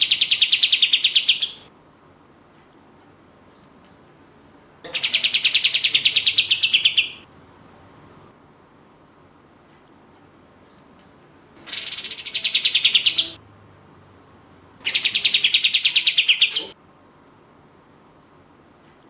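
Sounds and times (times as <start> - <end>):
bulbul trilled song: 11.7 - 13.4.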